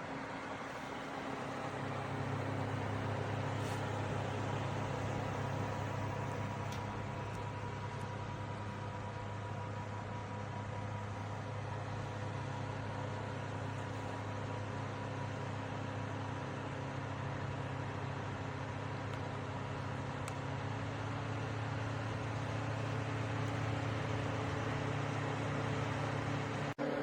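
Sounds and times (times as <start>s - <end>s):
low motor hum: 0.0s - 27.0s.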